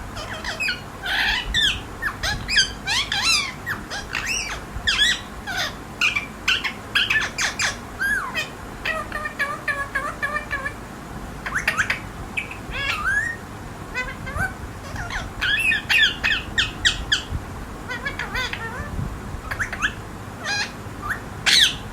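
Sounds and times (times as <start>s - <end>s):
parrot squawking: 0.0s - 10.8s, 11.4s - 17.3s, 17.9s - 21.9s.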